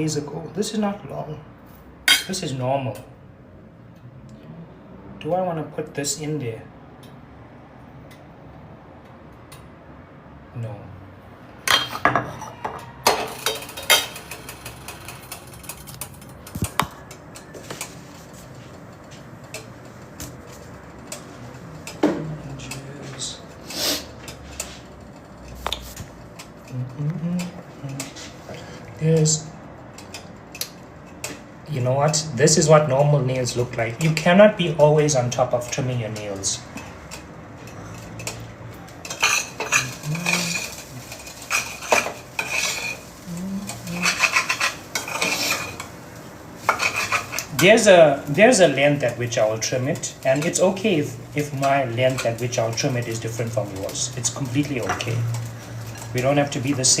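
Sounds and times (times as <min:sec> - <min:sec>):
cutlery clinking against a dish: 0:11.7 - 0:17.9, 0:35.7 - 0:46.0, 0:46.6 - 0:47.8.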